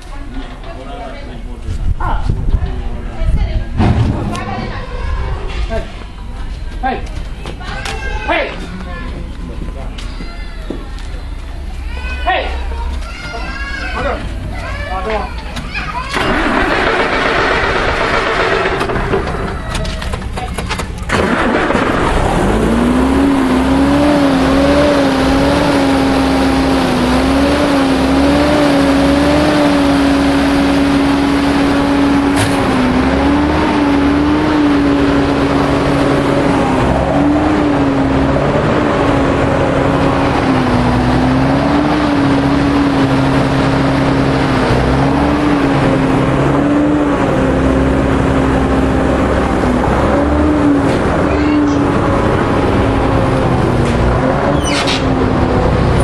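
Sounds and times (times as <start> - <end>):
truck diesel engine droning: 2.6 - 56.0.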